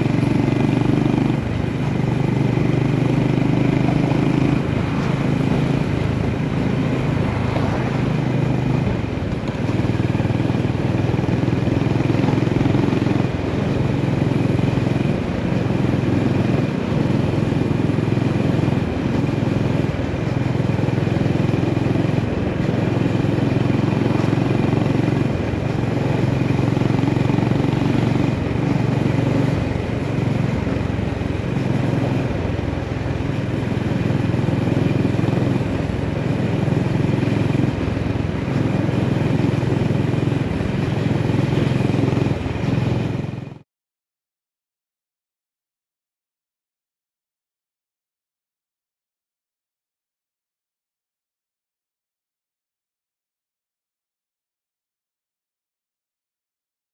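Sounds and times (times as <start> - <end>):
motorcycle engine running: 0.0 - 43.6.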